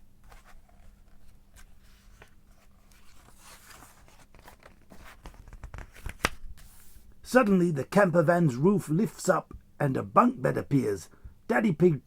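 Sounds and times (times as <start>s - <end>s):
faint steady hum: 0.0s - 12.0s
paper pages rustling and turning: 0.2s - 7.0s.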